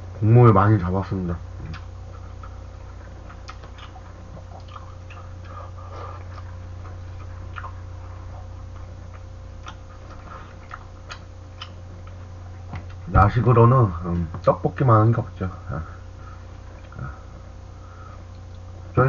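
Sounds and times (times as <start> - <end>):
low electrical hum: 0.0 - 19.0
person chewing: 1.6 - 13.0.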